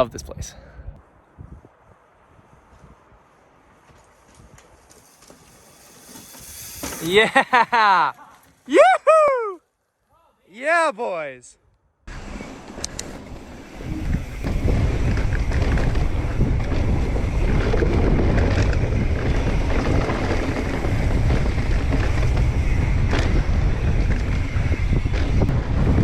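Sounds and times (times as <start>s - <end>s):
wind rushing over microphone: 0.0s - 4.9s, 12.1s - 26.0s
bike rattling over dirt: 3.7s - 8.8s, 12.1s - 26.0s.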